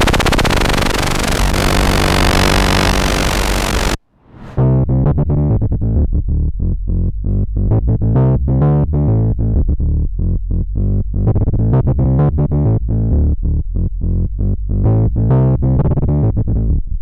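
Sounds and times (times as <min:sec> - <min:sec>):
synthesizer sequenced pattern: 0:00.0 - 0:04.0.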